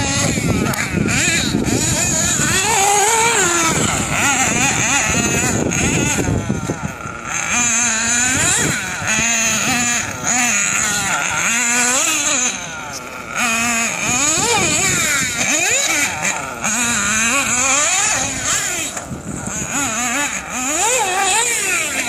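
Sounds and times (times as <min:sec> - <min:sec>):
model car engine revving: 0:00.0 - 0:22.0.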